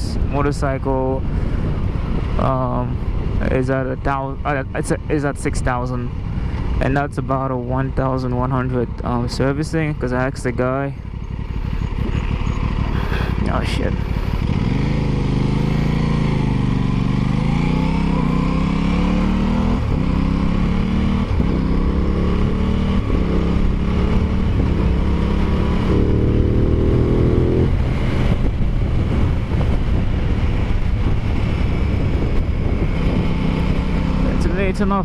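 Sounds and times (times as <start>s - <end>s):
motorcycle engine accelerating: 8.1s - 35.0s.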